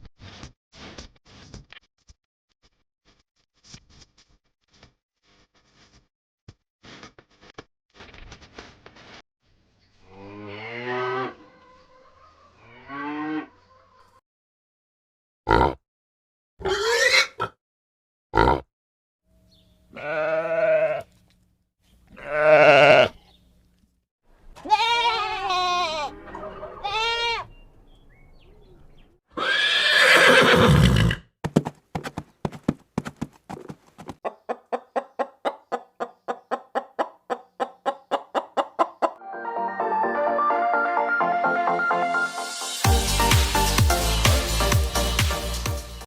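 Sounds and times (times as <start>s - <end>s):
farm animal calls: 10.3s - 14.2s, 24.6s - 30.4s, 34.2s - 39.2s.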